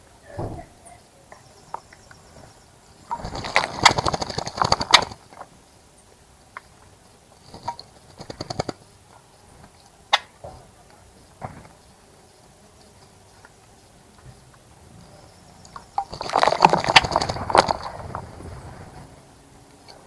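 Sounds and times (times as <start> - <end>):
bird splashing in water: 3.1 - 5.2, 16.0 - 19.1.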